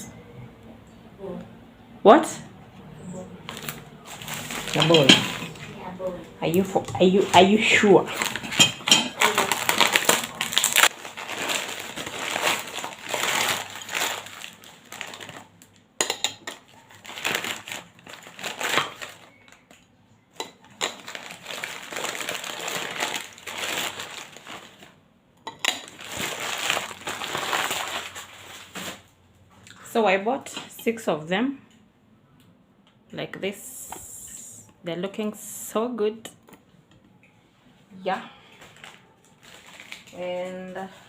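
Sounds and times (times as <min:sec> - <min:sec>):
packaging crinkling and rustling: 0:03.4 - 0:19.8, 0:20.5 - 0:25.0, 0:25.7 - 0:29.1, 0:38.5 - 0:41.0.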